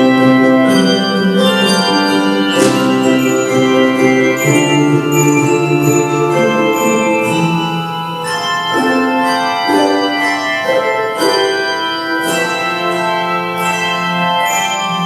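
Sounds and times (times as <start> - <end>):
organ playing chords: 0.0 - 15.0.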